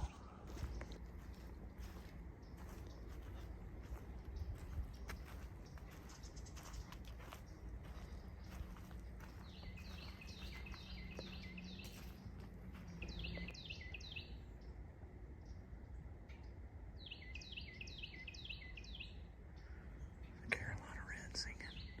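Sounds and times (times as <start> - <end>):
wren singing: 2.5 - 12.1, 12.8 - 14.4, 17.0 - 22.0.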